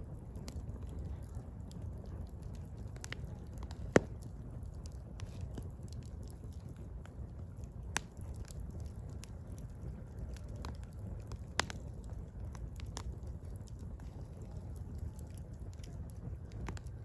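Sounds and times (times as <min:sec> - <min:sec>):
fire rumbling and crackling: 0:00.0 - 0:17.0
firewood popping: 0:00.2 - 0:17.0.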